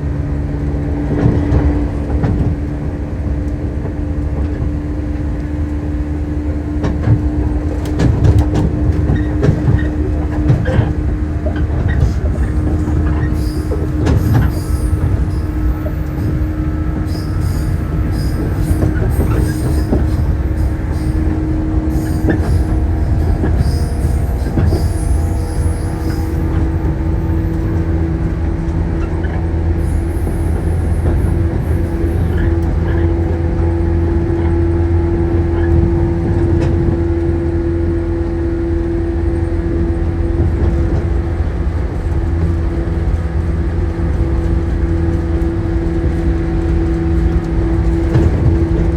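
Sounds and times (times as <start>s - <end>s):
train rumble on rails: 0.0s - 48.9s
wheel squeals: 11.9s - 27.9s.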